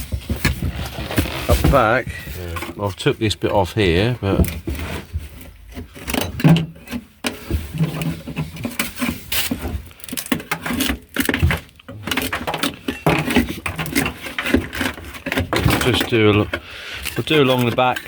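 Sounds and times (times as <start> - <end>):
hand scraper scraping metal: 4.2 - 18.0.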